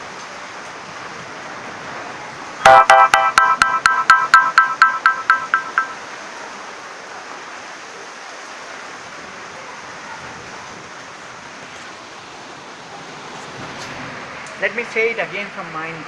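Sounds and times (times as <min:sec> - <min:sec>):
rapid electronic beeping: 0:02.6 - 0:06.0.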